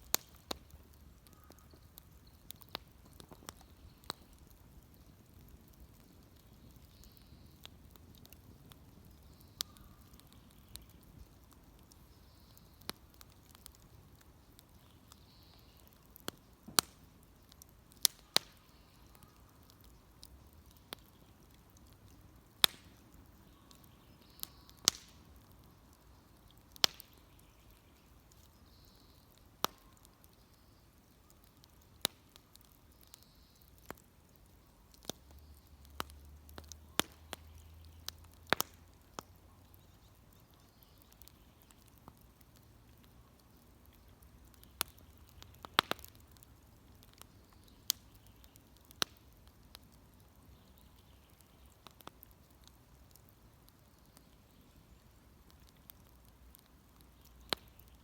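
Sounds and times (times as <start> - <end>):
bonfire crackling: 0.0 - 58.0
low steady hiss: 0.0 - 58.0.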